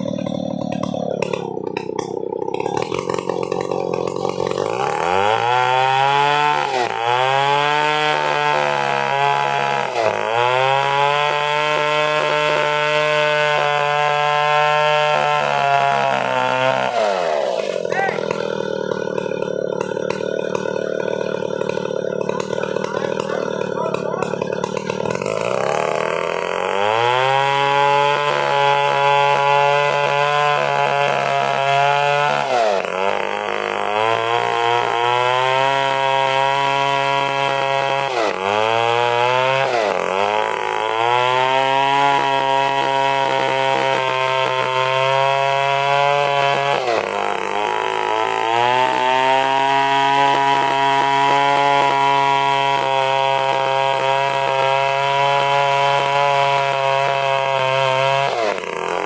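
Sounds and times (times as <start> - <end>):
chainsaw sawing wood: 0.0 - 59.0.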